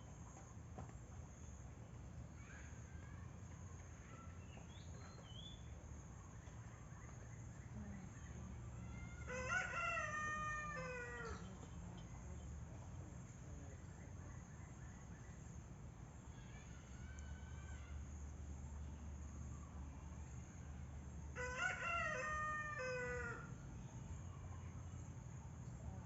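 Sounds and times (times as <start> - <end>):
low background hum: 0.0 - 26.0
small birds chirping: 2.4 - 9.2
rooster crowing: 8.9 - 11.4, 21.4 - 23.5.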